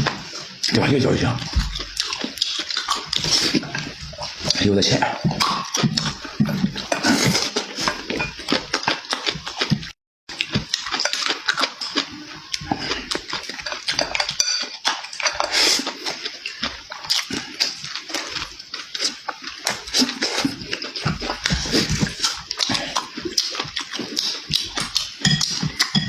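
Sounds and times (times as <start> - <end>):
chewing and lip-smacking: 0.0 - 26.0.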